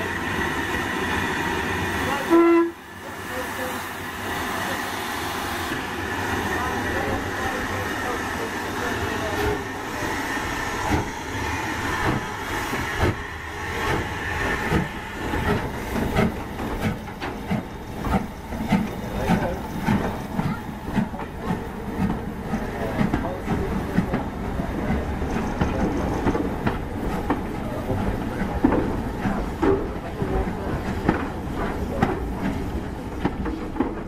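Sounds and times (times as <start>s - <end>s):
steam train clattering: 0.0s - 34.0s
train rumble: 0.0s - 34.0s.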